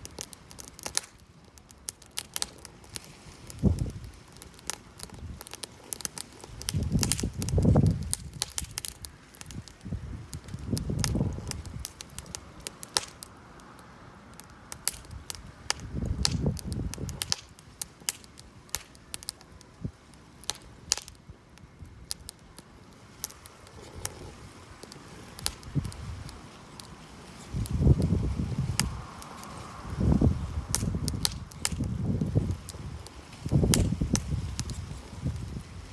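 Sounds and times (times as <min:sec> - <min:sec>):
campfire wood crackling: 0:00.0 - 0:35.9
low rumbling: 0:27.5 - 0:35.9.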